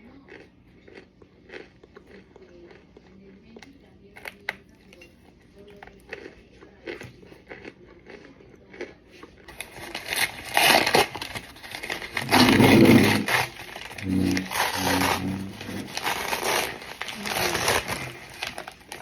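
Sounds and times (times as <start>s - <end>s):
cornstarch crunching: 5.9s - 19.0s.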